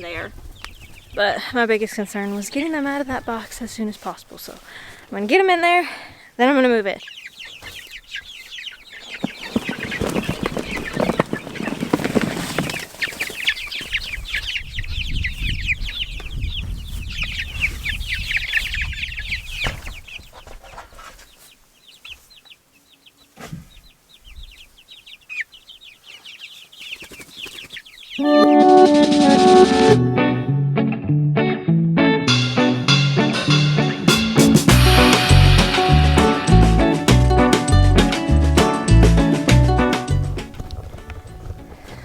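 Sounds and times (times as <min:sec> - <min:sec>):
chicks peeping: 0:00.0 - 0:29.9, 0:33.8 - 0:42.0
low rumble: 0:34.8 - 0:39.1.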